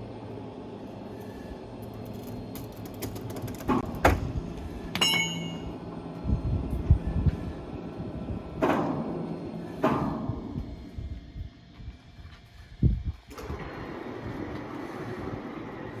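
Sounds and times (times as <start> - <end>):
metal clank ringing: 5.0 - 5.8.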